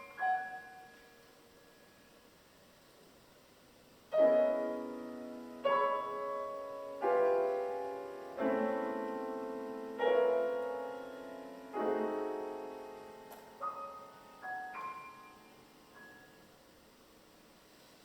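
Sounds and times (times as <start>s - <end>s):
piano chords ringing: 0.0s - 2.4s, 4.1s - 17.5s.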